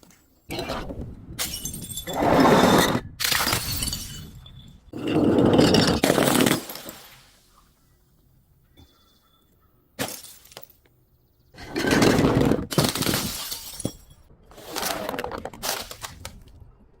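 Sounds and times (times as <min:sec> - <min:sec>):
glass crunching and shattering: 0:01.4 - 0:02.2, 0:03.2 - 0:07.2, 0:10.0 - 0:10.8, 0:12.7 - 0:14.3.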